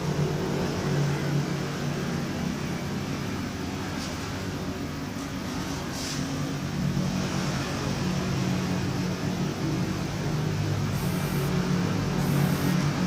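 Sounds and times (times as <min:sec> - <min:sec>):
motor droning: 0:06.6 - 0:13.0
hissing bursts: 0:10.9 - 0:11.5, 0:12.2 - 0:12.8.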